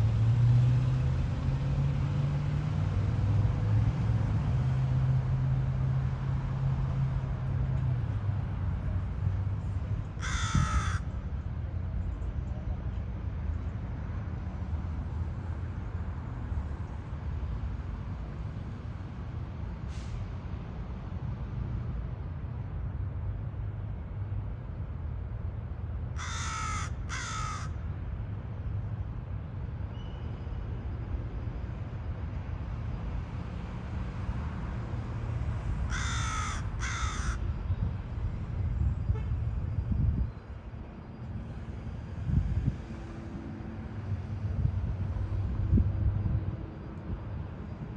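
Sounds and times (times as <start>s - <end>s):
crow cawing: 10.2s - 11.2s, 26.2s - 27.8s, 35.9s - 37.4s.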